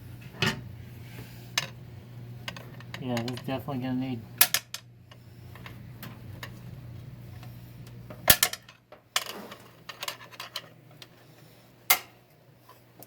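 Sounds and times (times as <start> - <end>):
metal parts clicking and clattering: 8.3 - 10.7.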